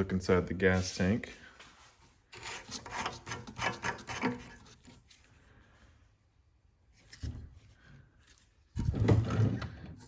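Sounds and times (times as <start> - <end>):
gas cap rasping twists: 2.4 - 5.1
faint handling sound: 4.1 - 10.0.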